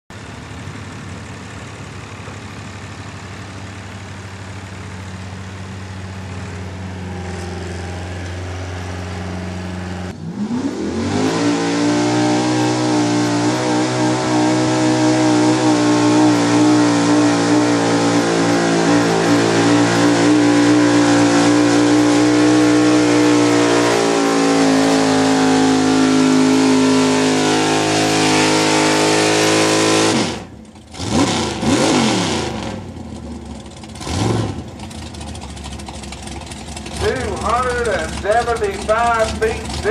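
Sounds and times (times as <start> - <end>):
truck engine revving under load: 0.6 - 39.9.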